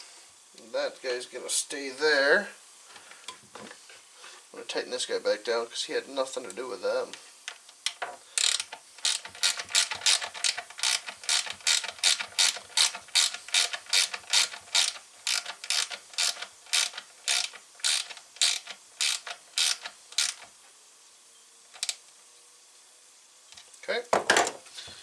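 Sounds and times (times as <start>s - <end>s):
ratchet wrench clicking: 7.8s - 20.5s.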